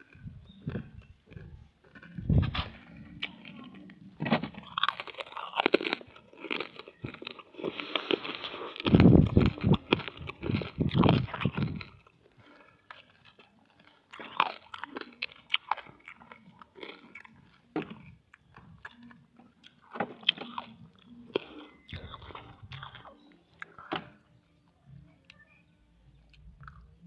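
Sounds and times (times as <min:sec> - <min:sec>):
person chewing: 0:00.0 - 0:24.2, 0:26.2 - 0:27.0
candy crunching: 0:00.0 - 0:24.3.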